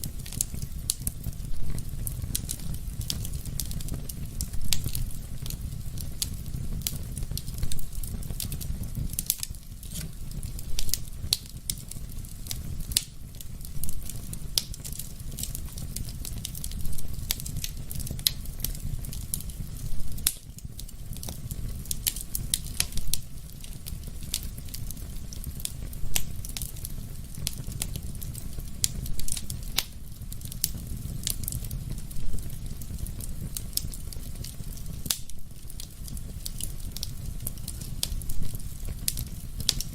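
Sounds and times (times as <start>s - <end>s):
fire crackling in fireplace: 0.0s - 39.9s
sharp fire pops: 0.0s - 39.9s.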